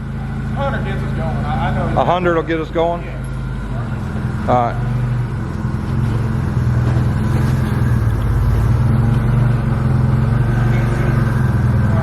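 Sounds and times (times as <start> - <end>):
forklift engine running: 0.0 - 12.0.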